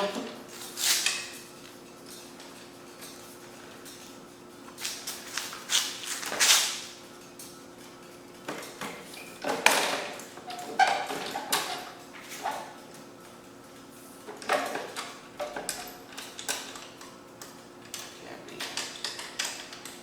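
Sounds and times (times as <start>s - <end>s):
knocks clicks and scrapes on lawnmower: 7.8s - 13.1s.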